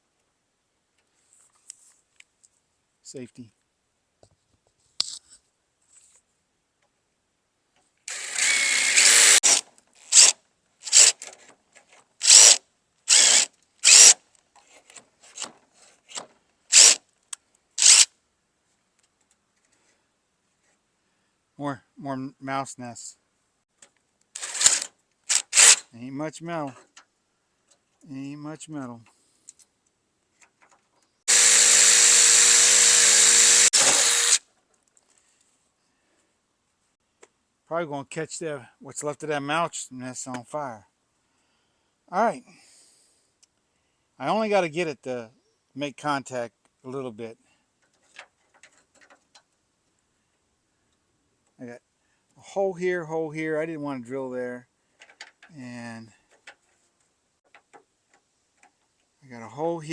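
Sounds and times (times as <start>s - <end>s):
power drill boring sheet metal: 8.1s - 11.3s, 12.2s - 14.2s, 16.7s - 17.0s, 17.8s - 18.1s, 24.4s - 25.8s, 31.3s - 34.4s.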